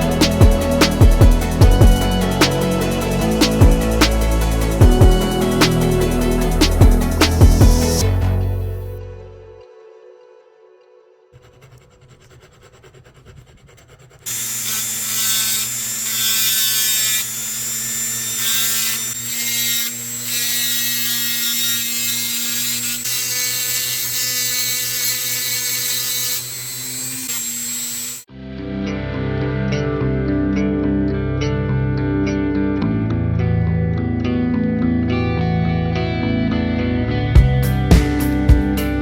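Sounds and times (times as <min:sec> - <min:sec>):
power tool grinding: 0:00.0 - 0:08.9, 0:11.4 - 0:28.3.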